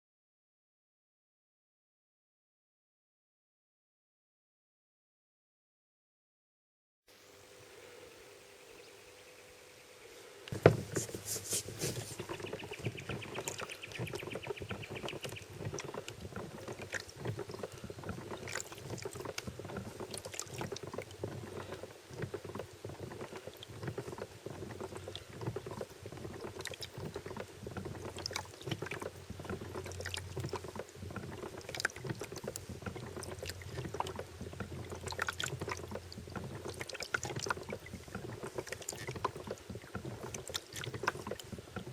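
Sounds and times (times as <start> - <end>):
water noise: 7.1 - 41.9
crackling clicks and knocks: 10.5 - 41.9.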